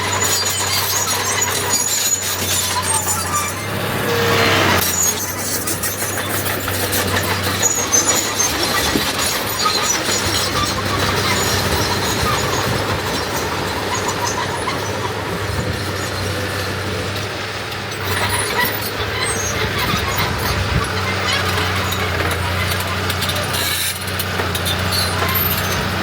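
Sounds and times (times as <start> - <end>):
high metallic squeaks: 0.0 - 16.5, 17.9 - 26.0
diesel engine running: 0.0 - 26.0.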